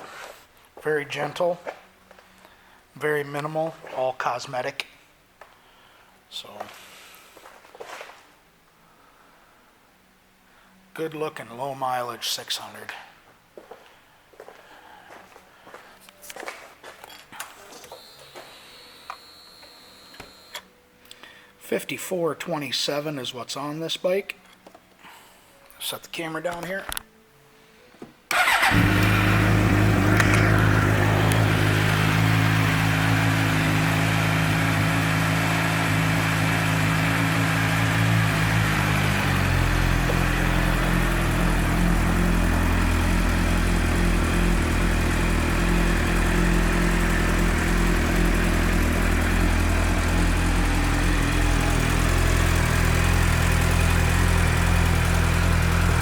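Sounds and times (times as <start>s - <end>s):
motorcycle engine idling: 28.3s - 56.0s
motorcycle engine starting: 28.3s - 56.0s.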